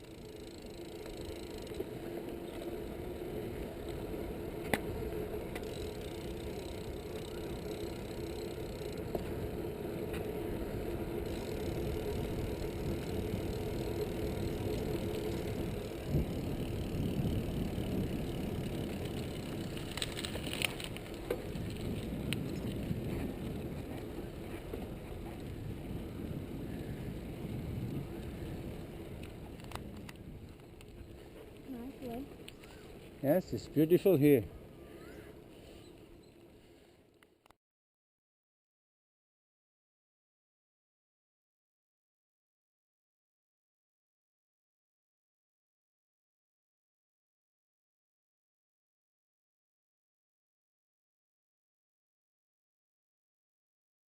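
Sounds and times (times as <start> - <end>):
bike clicks and rattles: 0.0 - 34.4
bike rolling noise: 0.0 - 37.4.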